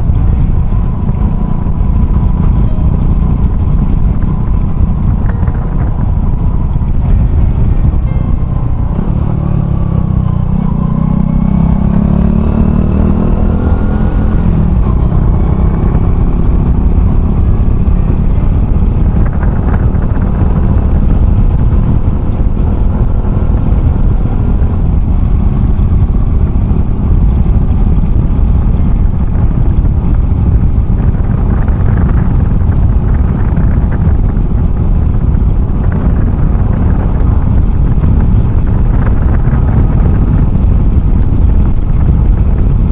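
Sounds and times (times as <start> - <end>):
motorcycle engine: 0.0 - 42.9
road noise: 0.0 - 42.9
wind noise on microphone: 0.0 - 42.9.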